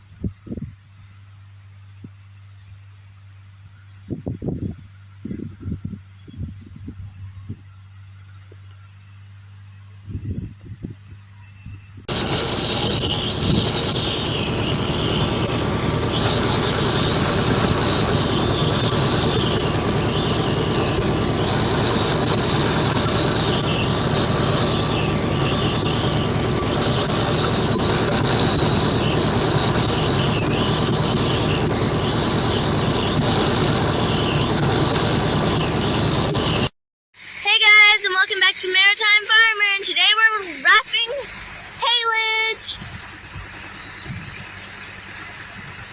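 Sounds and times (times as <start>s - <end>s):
haying machinery running: 12.1s - 36.7s
high wavering squeal: 12.1s - 36.7s.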